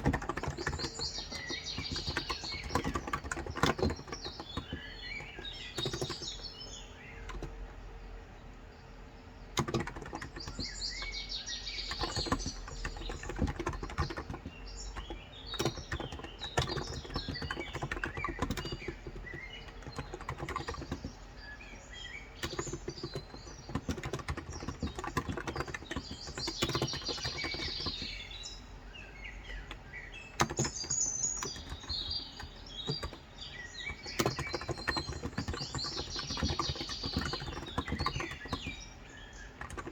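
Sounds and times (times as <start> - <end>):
keyboard key clicks: 0.0 - 6.4, 9.6 - 11.2, 11.8 - 21.2, 22.4 - 28.2, 29.4 - 38.8, 39.4 - 39.9
birds chirping: 0.0 - 39.9.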